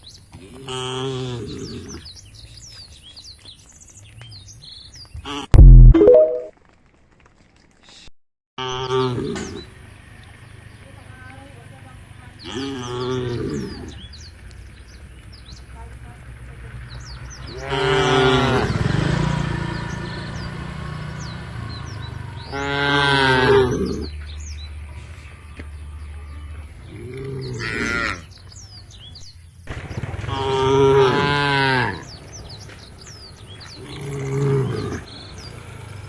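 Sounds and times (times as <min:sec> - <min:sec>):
faint bird chirps: 0:05.6 - 0:06.5
cattle mooing: 0:22.4 - 0:23.9.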